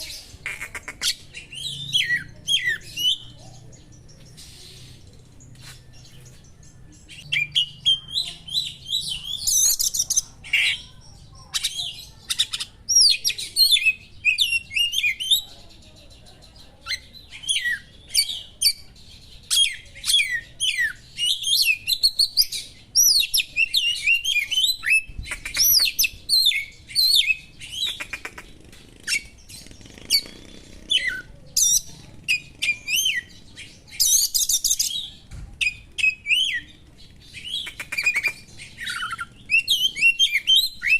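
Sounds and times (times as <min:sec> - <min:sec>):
songbird whistles trills and chatter: 0:00.0 - 0:40.9.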